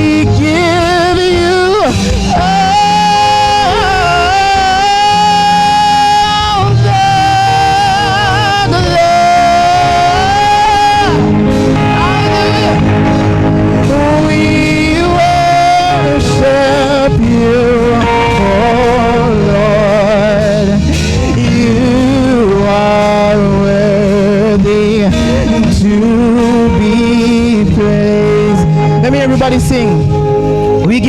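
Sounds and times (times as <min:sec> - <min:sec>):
band playing worship music: 0:00.0 - 0:31.0
person singing with vibrato: 0:00.0 - 0:31.0.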